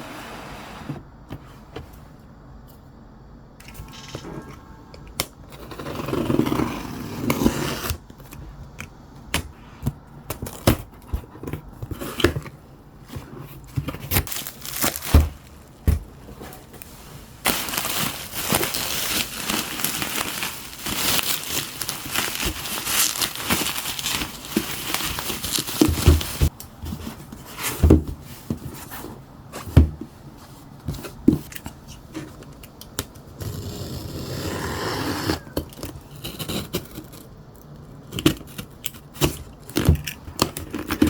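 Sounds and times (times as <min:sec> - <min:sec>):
packaging crinkling and tearing: 0:13.9 - 0:15.9, 0:16.7 - 0:26.5.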